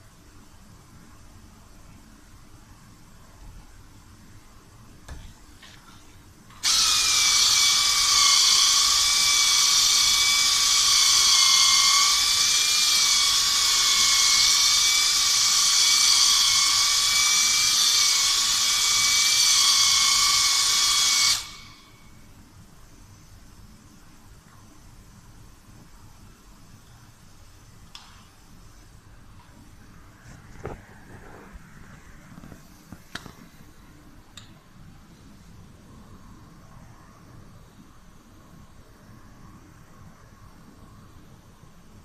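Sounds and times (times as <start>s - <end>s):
power tool whining: 6.6s - 21.9s.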